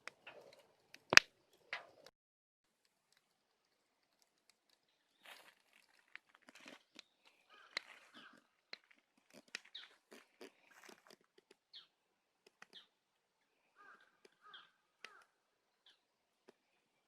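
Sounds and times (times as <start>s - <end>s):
bonfire crackling and popping: 0.0s - 2.1s, 2.7s - 11.5s.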